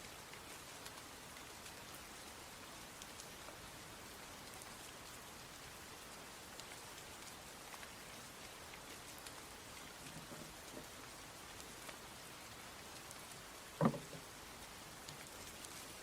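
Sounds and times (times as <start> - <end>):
steady rain falling: 0.0 - 16.0
single short knock: 13.8 - 14.2.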